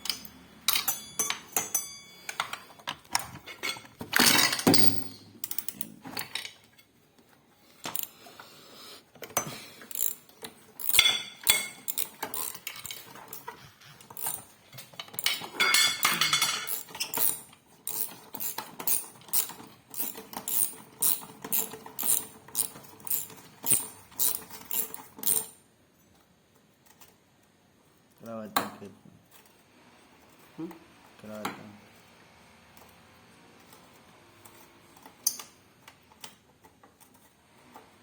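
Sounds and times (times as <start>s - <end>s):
hand tools clanking on metal: 0.0s - 6.6s, 10.8s - 25.5s.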